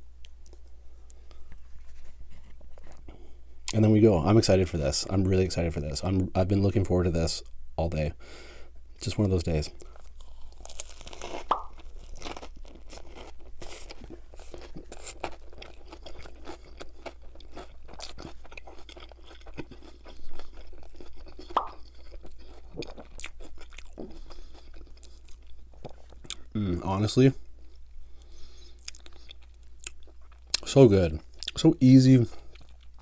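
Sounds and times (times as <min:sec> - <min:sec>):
crunchy biting and chewing: 0:09.8 - 0:26.5.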